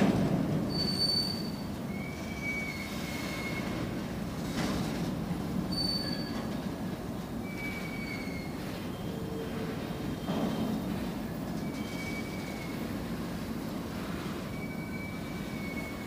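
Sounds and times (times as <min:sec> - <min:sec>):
high-pitched wheel squeals: 0:00.7 - 0:03.9, 0:05.7 - 0:06.5, 0:07.4 - 0:09.5, 0:11.6 - 0:13.0, 0:14.4 - 0:16.0.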